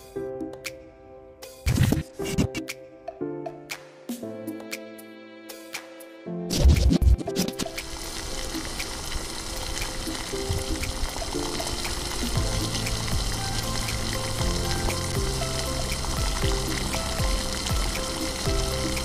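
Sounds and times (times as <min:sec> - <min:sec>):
food crackling in hot oil: 0:06.6 - 0:19.0
oil sizzling: 0:06.6 - 0:19.0.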